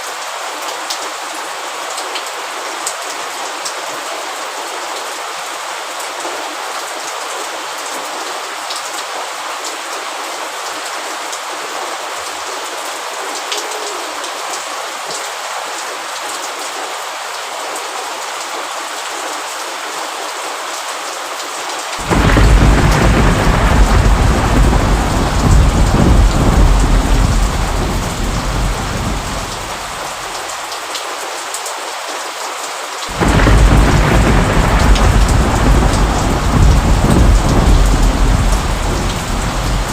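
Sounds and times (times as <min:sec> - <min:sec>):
heavy rain falling: 0:00.0 - 0:39.9
thunder rumbling: 0:22.0 - 0:30.5, 0:33.1 - 0:39.9.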